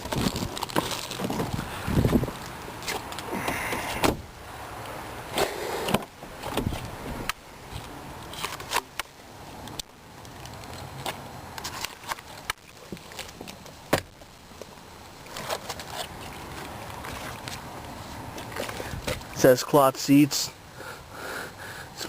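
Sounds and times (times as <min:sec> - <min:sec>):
clicks and rustles of handling: 0:04.8 - 0:19.4.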